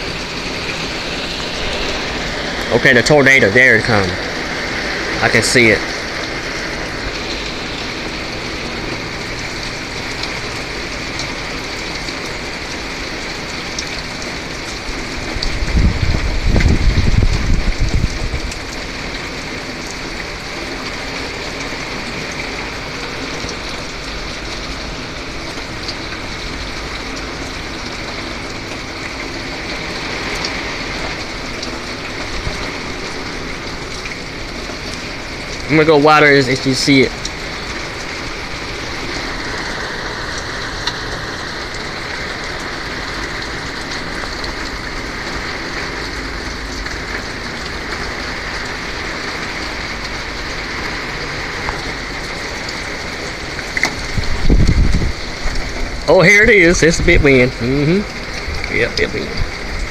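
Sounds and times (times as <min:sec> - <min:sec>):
steady rain: 0:00.0 - 0:59.9
wind: 0:00.0 - 0:59.9
wind gust buffeting microphone: 0:15.3 - 0:18.7, 0:54.0 - 0:57.6.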